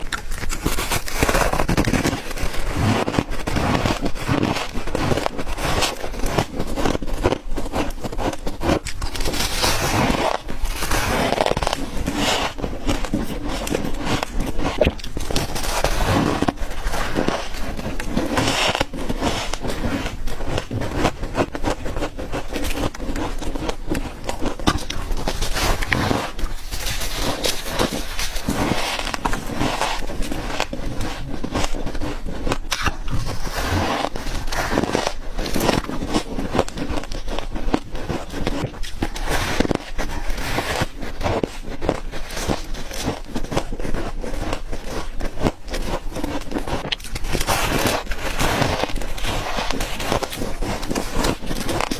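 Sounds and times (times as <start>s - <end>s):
ice crunching between teeth: 0.0s - 51.9s.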